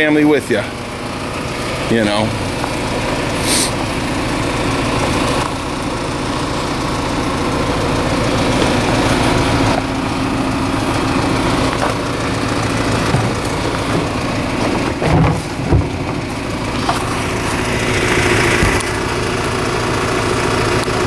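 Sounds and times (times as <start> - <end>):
car engine idling: 0.0 - 21.0
brief hiss: 3.4 - 3.8.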